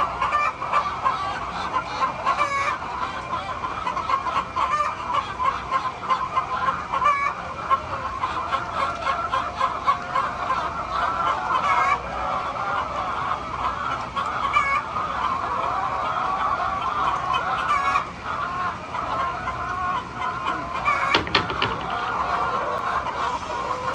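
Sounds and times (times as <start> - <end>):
chickens clucking: 0.0 - 23.9.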